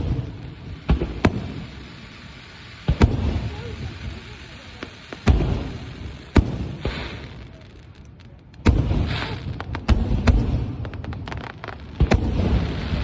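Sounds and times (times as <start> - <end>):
fireworks booming: 0.0 - 13.0
fireworks crackling: 0.0 - 13.0
fireworks hissing: 0.0 - 13.0.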